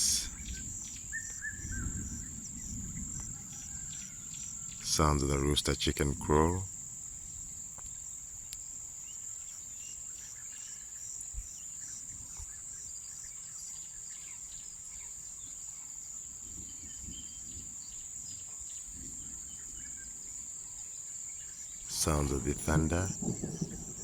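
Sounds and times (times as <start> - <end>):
faint bird chirps: 0.0 - 6.7, 16.5 - 24.0
insects chirring: 0.0 - 24.0.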